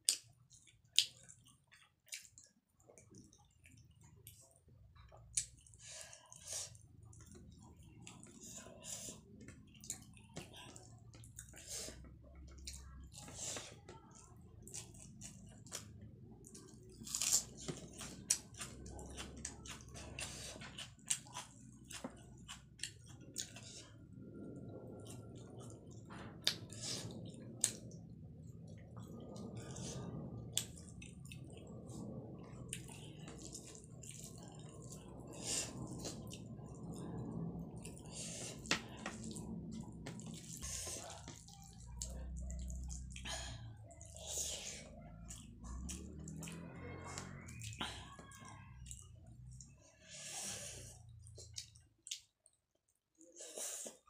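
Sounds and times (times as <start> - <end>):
person chewing: 0.0 - 4.5, 14.6 - 24.1, 29.0 - 54.0.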